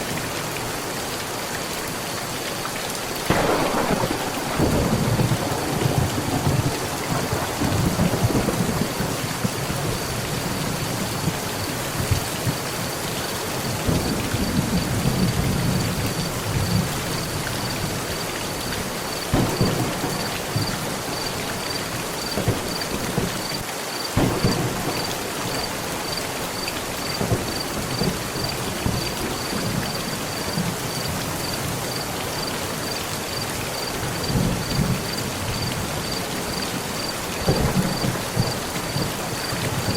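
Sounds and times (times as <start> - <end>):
heavy rain on a metal roof: 0.0 - 39.9
thunder rumbling: 3.3 - 12.7, 19.2 - 23.6, 24.2 - 30.8, 34.1 - 39.9.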